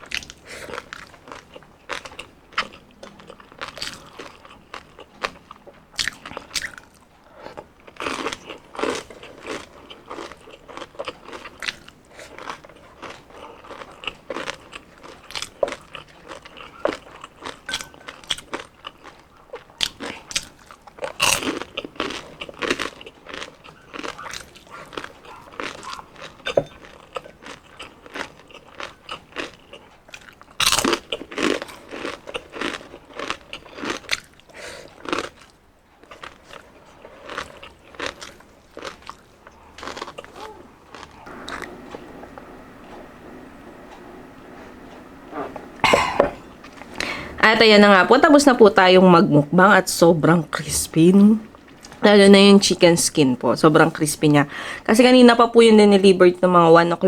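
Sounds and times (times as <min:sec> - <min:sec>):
crunching and chewing of crispy food: 0:00.0 - 0:43.1, 0:51.4 - 0:52.1.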